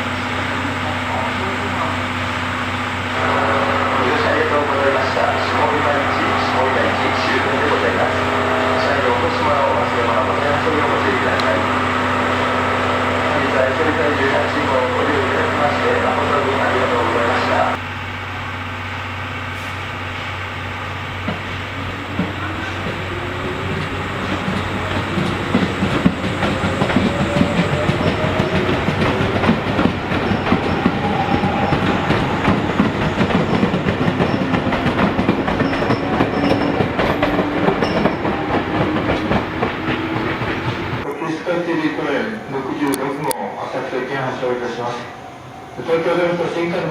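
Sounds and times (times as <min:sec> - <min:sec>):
train wheels clattering: 0:21.1 - 0:41.1.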